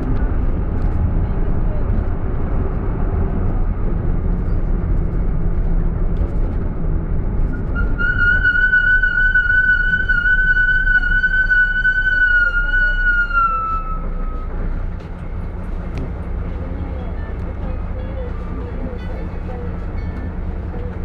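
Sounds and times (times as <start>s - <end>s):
minibus rumbling: 0.0s - 21.0s
high-pitched brake squeal: 7.5s - 14.8s.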